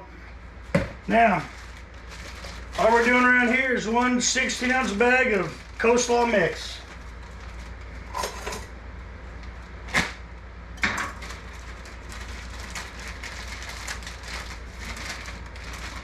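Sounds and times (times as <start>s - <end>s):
low steady hum: 0.0s - 16.0s
plastic bag crinkling: 1.0s - 8.5s, 11.1s - 16.0s.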